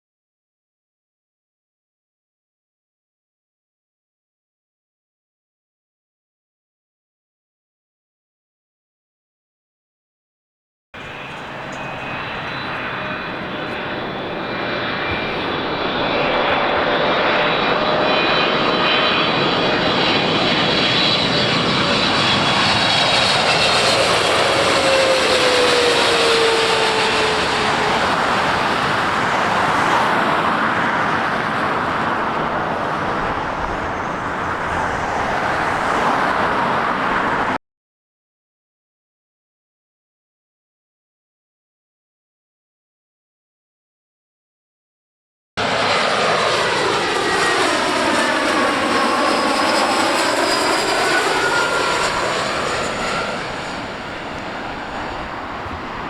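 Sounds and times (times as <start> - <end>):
jet airliner passing by: 11.0 - 37.6, 45.6 - 56.0.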